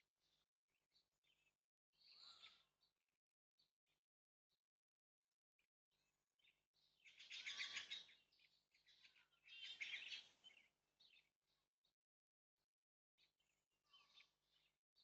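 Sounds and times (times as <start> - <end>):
harsh raspy bird calls: 7.2 - 8.1.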